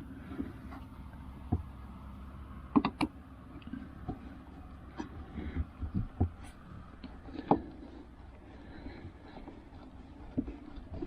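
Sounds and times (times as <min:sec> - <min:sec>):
knocks and clicks of screwing: 0:02.7 - 0:08.0, 0:08.8 - 0:11.0.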